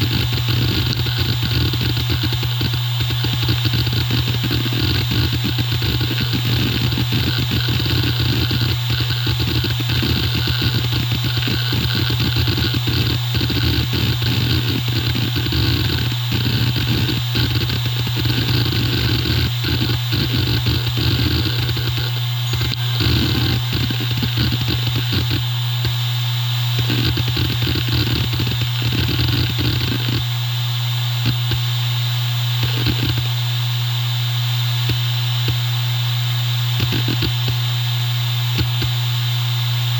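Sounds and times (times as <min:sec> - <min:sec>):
hard drive heads clicking: 0:00.0 - 0:25.5
hard drive spindle hum: 0:00.0 - 0:39.9.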